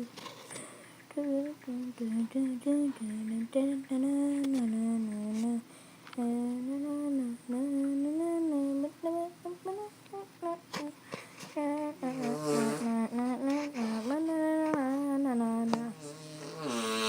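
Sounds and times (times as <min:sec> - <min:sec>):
child humming: 0:06.2 - 0:17.0.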